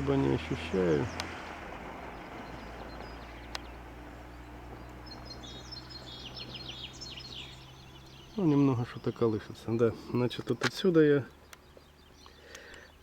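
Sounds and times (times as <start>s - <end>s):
outdoor background noise: 0.0s - 13.0s
small bird chirping: 0.7s - 13.0s.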